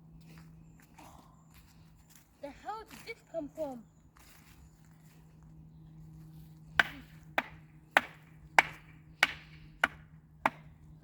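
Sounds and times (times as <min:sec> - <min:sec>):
hard chopping strikes: 0:06.8 - 0:10.7.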